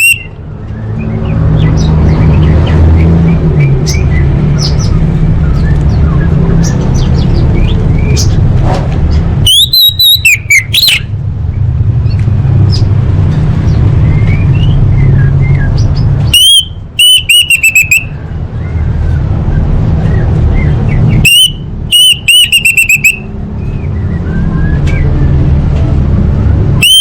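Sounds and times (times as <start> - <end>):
bird whistled calls: 0.0 - 1.2, 9.4 - 11.1, 14.0 - 19.3, 20.0 - 25.2.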